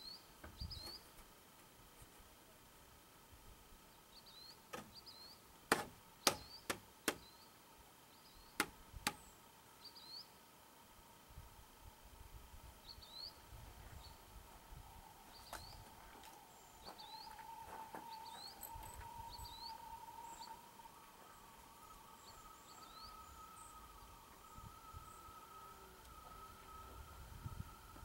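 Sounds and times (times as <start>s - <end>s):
bird chirping: 0.0s - 1.1s, 4.0s - 5.5s, 6.2s - 10.4s, 12.8s - 14.3s, 15.0s - 28.0s
faint steady tone: 0.0s - 28.0s.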